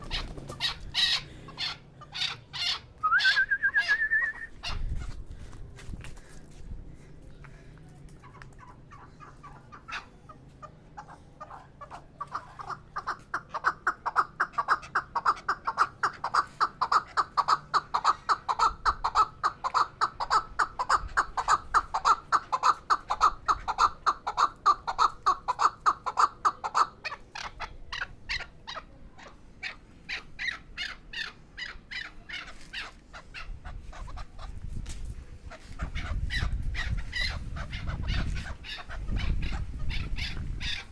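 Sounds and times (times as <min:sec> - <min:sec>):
partridge clucking call: 0:08.2 - 0:28.9.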